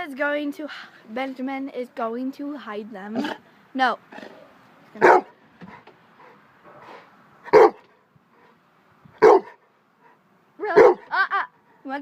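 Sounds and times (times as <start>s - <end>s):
dog barking: 5.0s - 5.3s, 7.5s - 7.9s, 9.2s - 9.6s, 10.7s - 11.0s.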